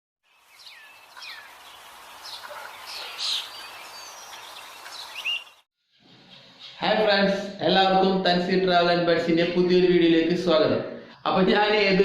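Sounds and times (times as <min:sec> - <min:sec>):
birds chirping: 0:00.2 - 0:05.7.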